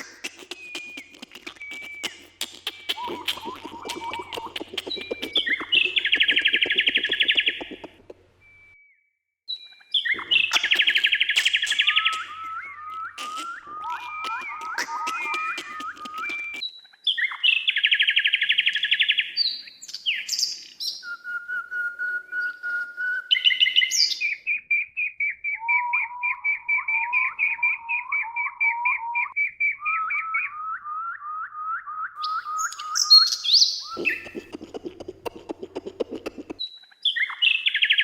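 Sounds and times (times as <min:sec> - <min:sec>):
rapid rattling bird call: 0:00.0 - 0:08.0, 0:13.2 - 0:16.6, 0:34.0 - 0:36.6
songbird singing: 0:00.0 - 0:08.7, 0:09.9 - 0:31.4, 0:32.2 - 0:38.0.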